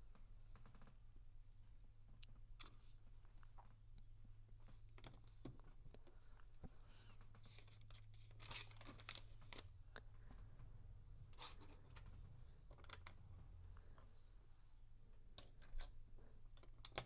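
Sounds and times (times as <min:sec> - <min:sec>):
low steady hum: 0:00.0 - 0:17.0
crinkling rustles: 0:07.1 - 0:09.8.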